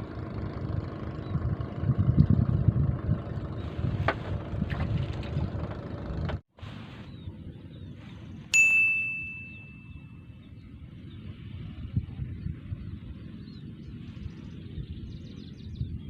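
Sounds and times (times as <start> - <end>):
engine and wind noise: 0.0 - 16.0
bell-like ding: 8.5 - 10.2.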